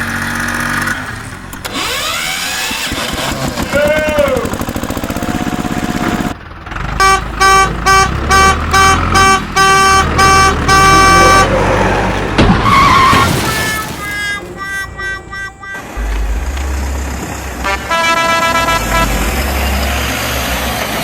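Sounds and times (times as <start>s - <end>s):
engine rumble: 0.0s - 21.0s
vehicle horn honking: 7.0s - 11.6s, 12.8s - 19.6s.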